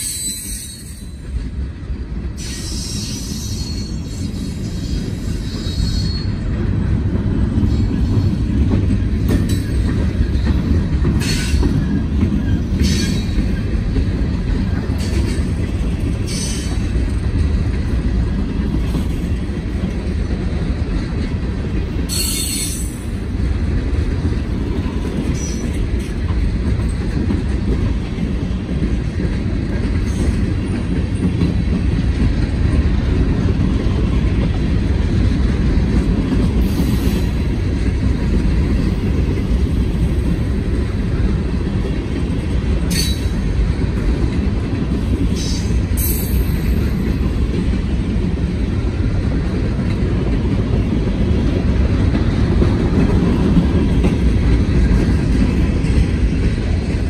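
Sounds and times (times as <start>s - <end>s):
high wheel squeals: 0.0s - 1.2s, 2.4s - 6.4s
freight train wheels rumbling: 0.0s - 57.0s.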